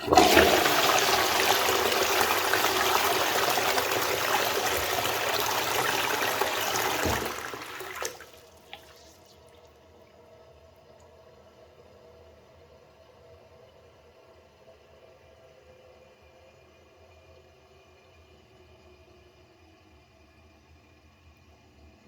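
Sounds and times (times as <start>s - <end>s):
water gurgle: 0.0s - 9.2s
toilet flushing: 0.0s - 9.7s.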